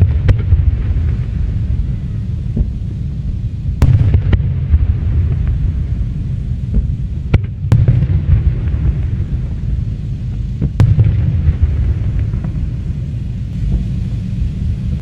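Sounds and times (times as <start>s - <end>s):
fireworks sharp cracks: 0.0s - 15.0s
fireworks shells rumbling: 0.0s - 15.0s.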